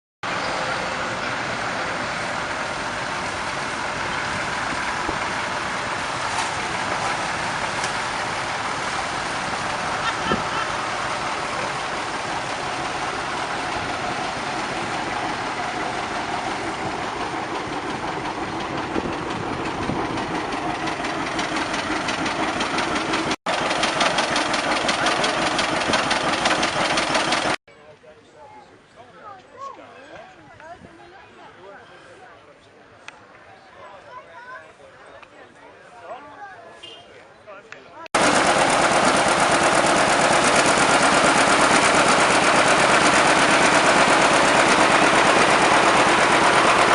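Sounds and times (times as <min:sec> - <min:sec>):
tractor engines running: 0:00.3 - 0:27.6, 0:38.2 - 0:46.9
engine with rapid firing beat: 0:02.4 - 0:27.6, 0:38.2 - 0:46.9.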